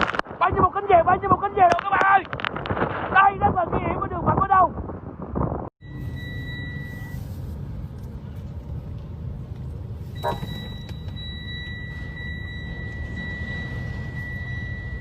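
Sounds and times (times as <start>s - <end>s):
high-pitched beep tone: 5.8s - 7.4s, 10.2s - 15.0s.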